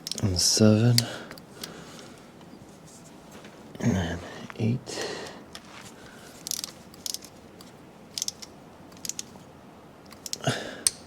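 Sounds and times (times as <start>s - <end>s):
wrench ratcheting on a bolt: 0.0s - 0.3s, 6.4s - 9.4s, 10.1s - 11.0s.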